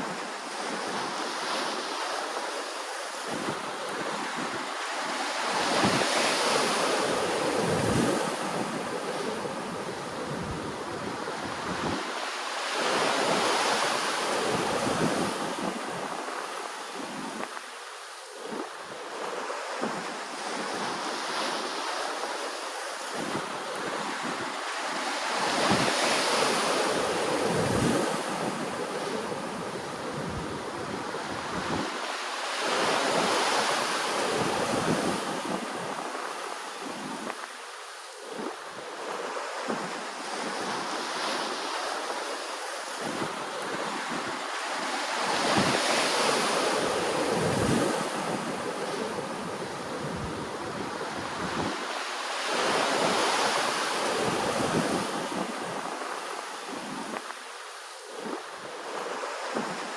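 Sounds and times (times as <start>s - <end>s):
wind buffeting microphone: 5.5s - 17.6s, 25.4s - 32.1s, 42.9s - 57.3s.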